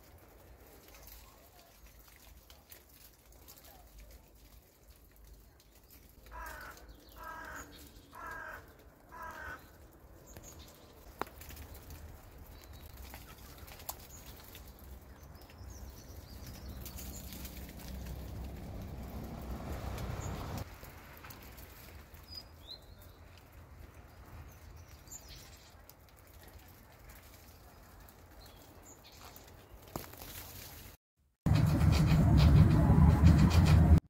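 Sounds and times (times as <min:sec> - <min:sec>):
low outdoor rumble: 0:03.3 - 0:29.0, 0:31.5 - 0:34.0.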